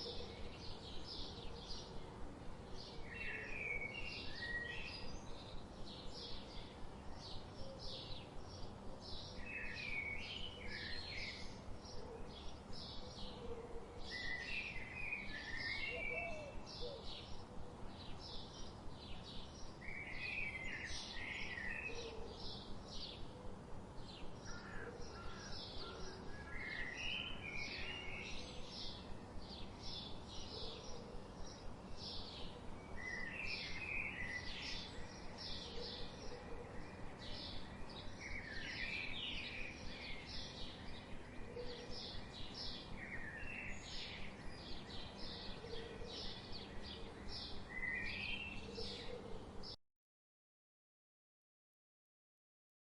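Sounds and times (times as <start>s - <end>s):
low background hiss: 0.0s - 49.8s
bird chirping: 2.8s - 13.4s, 24.0s - 49.8s
warbling bird song: 2.8s - 49.7s.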